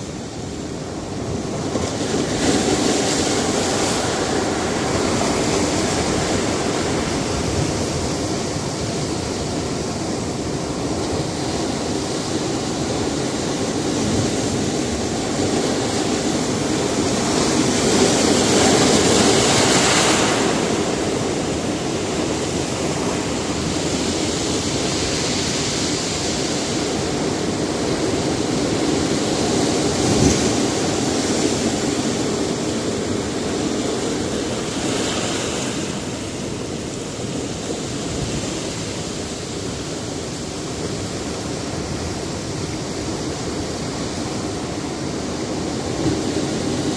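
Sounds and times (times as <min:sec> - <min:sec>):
surf washing against rocks: 0:00.0 - 0:46.9
wave breaking: 0:13.6 - 0:21.9.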